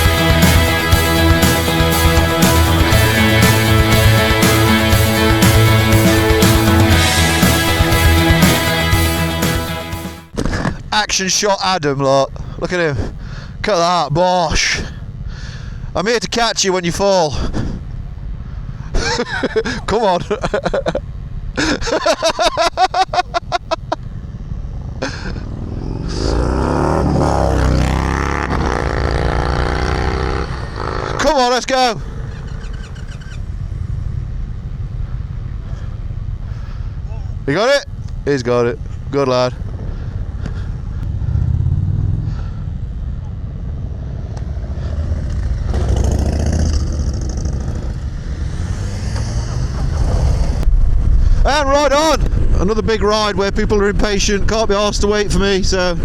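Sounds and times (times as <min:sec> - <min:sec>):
motorcycle engine revving: 0:00.0 - 0:10.4, 0:23.9 - 0:37.0, 0:39.6 - 0:51.2.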